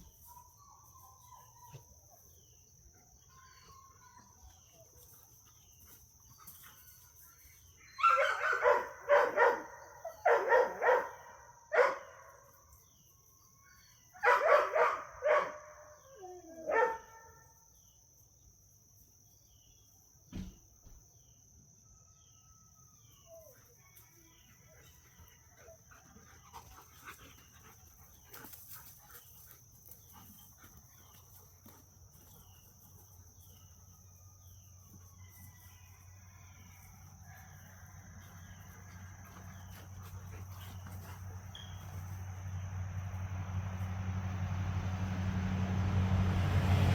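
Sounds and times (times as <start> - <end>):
dogs barking: 7.9 - 12.4, 14.2 - 16.0, 16.7 - 17.4.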